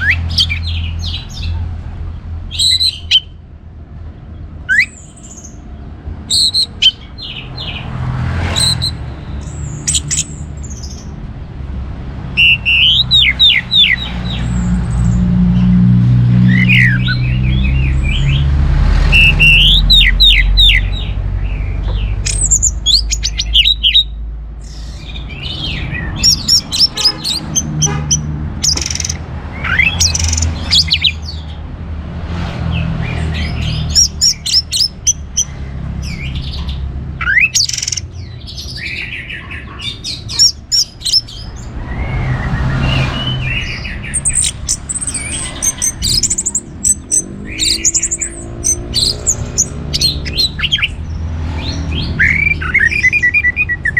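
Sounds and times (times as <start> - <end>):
thrush singing: 11.8 - 31.6, 32.6 - 53.9.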